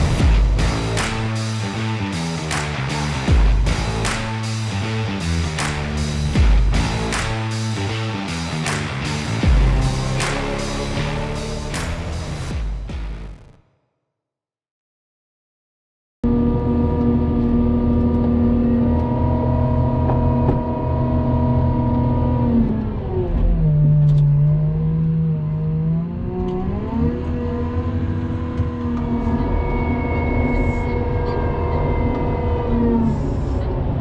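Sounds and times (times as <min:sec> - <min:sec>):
vehicle engine running: 0:00.0 - 0:13.2.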